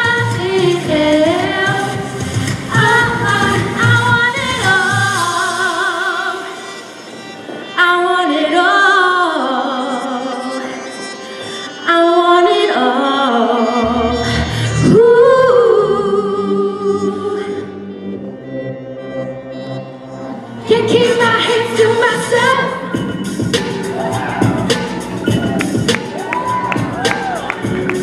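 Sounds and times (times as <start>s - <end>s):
person singing with vibrato: 7.6s - 26.2s.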